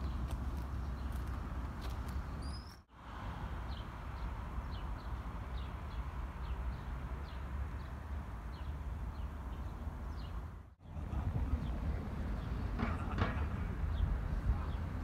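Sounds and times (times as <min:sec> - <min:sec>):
small birds chirping: 0:00.0 - 0:02.9, 0:03.6 - 0:11.0.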